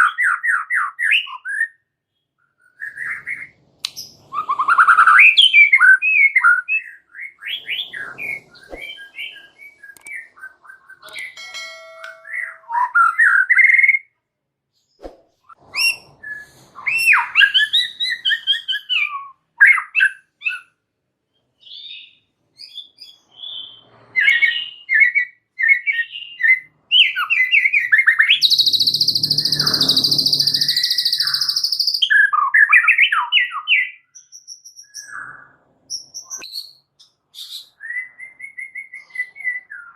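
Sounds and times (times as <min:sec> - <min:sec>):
bird singing whistled phrases: 0:21.6 - 0:39.9.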